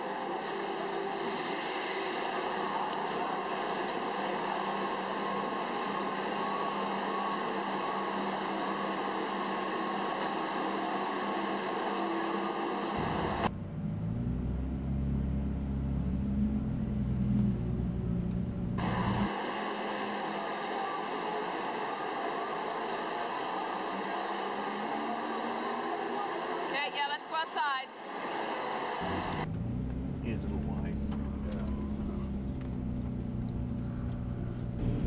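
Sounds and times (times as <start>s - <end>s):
car engine idling: 29.0s - 35.0s.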